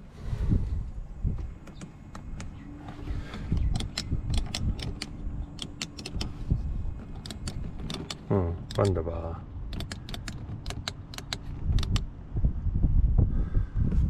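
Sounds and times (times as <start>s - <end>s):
power window motor running: 1.4s - 9.0s
window switch clicks: 3.4s - 6.4s, 7.2s - 9.0s, 9.7s - 12.1s.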